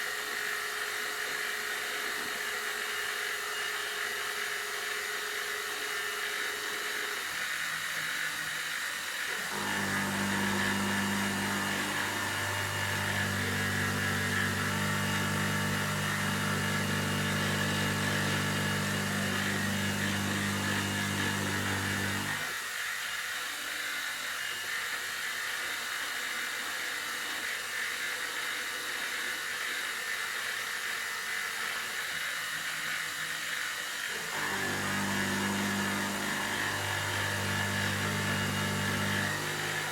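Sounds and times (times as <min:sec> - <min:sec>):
milling machine cutting metal: 0:00.1 - 0:22.8, 0:29.6 - 0:39.9.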